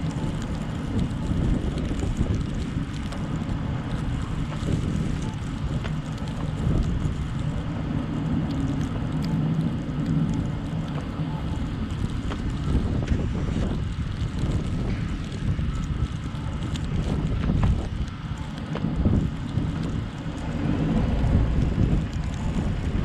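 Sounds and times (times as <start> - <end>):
light ticks: 0.0 - 7.6
engine and tyres rumble: 0.0 - 23.0
wind noise: 0.0 - 23.0.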